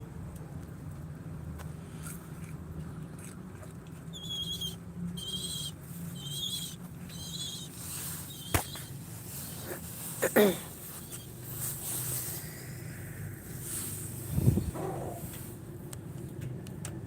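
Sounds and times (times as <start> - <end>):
steady low hum: 0.0 - 17.0
bird calling with high wavering notes: 4.2 - 7.7.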